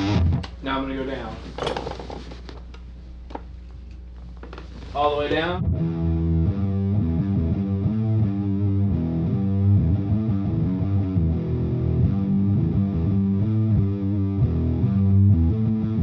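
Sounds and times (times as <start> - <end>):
dark fuzz electric guitar: 0.0 - 0.5, 5.6 - 16.0.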